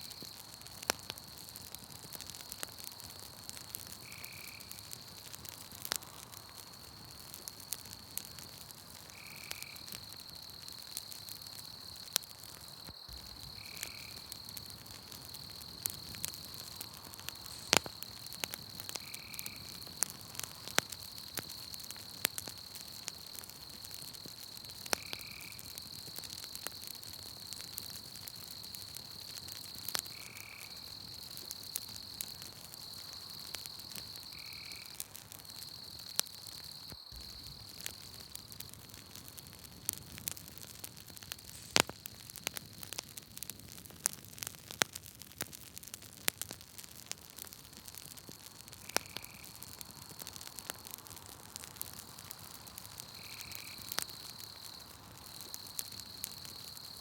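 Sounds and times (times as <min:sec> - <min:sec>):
campfire crackling and popping: 0:00.0 - 0:57.0
night insects trilling: 0:00.0 - 0:57.0.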